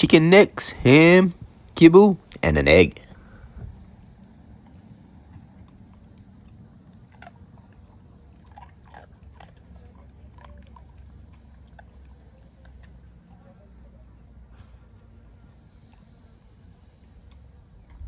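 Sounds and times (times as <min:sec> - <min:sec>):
steady low hum: 0:00.0 - 0:08.4
dog chewing and crunching: 0:04.6 - 0:13.4.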